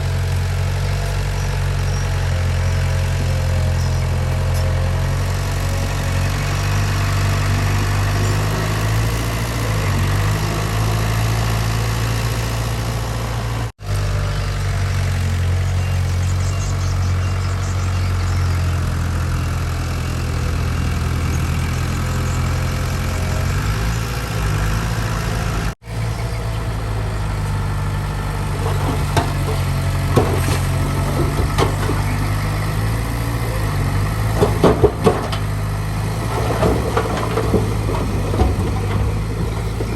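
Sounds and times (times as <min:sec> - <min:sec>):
heavy diesel engine running: 0:00.0 - 0:39.9
metallic knocks and clanks: 0:28.6 - 0:33.5, 0:34.2 - 0:39.9.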